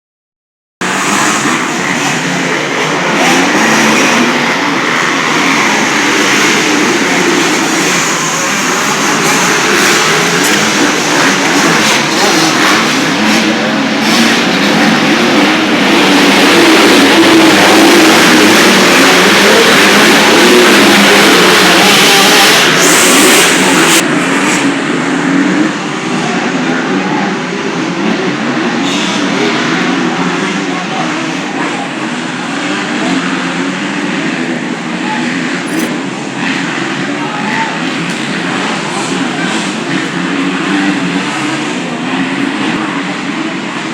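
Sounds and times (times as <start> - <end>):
motorcycle engines revving: 0.8 - 43.9.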